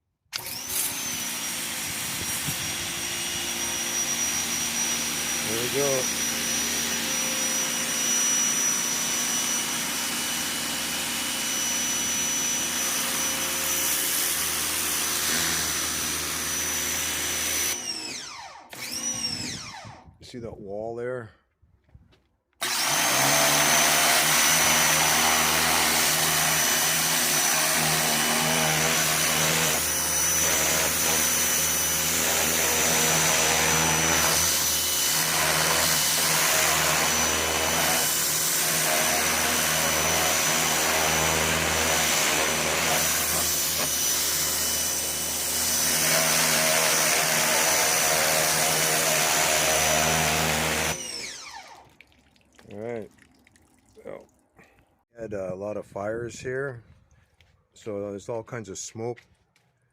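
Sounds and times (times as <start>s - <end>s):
pressure washer motor whining: 0.3s - 20.1s, 22.6s - 52.0s.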